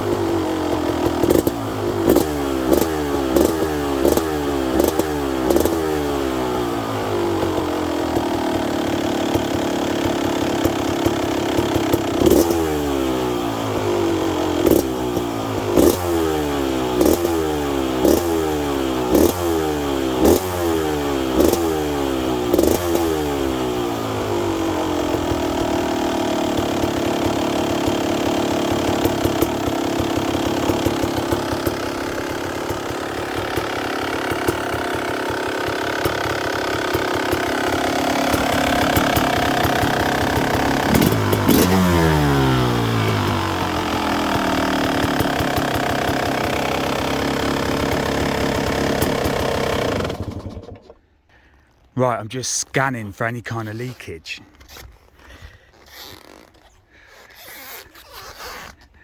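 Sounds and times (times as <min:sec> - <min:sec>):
two-stroke engine revving and idling: 0:00.0 - 0:51.9, 0:55.5 - 0:59.0.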